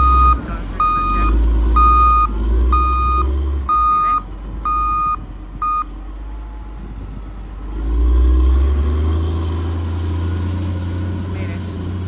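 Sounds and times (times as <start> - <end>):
backup alarm beep: 0.0 - 5.9
heavy machine engine revving: 0.0 - 12.0.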